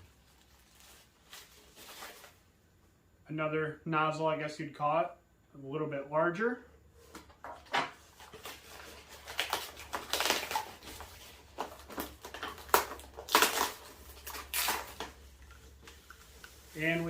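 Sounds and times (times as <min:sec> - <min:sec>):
styrofoam and plastic rustling: 0:00.0 - 0:02.4, 0:08.0 - 0:17.0.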